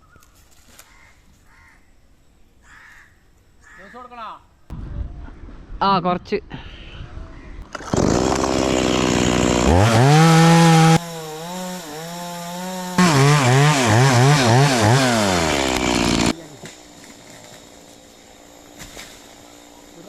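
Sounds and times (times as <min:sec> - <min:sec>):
chainsaw running at high revs: 0:07.8 - 0:16.4, 0:18.4 - 0:20.0.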